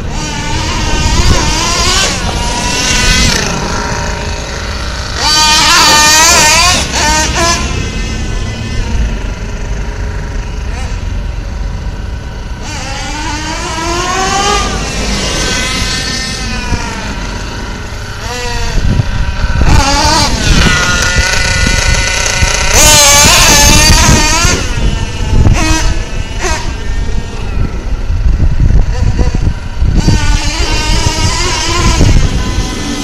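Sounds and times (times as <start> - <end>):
model truck nitro engine revving: 0.0 - 33.0.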